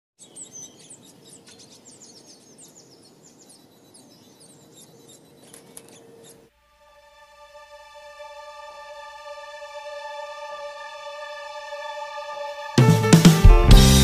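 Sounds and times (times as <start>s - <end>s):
small songbirds chirping: 0.2s - 6.5s
steady low background noise: 0.2s - 12.7s.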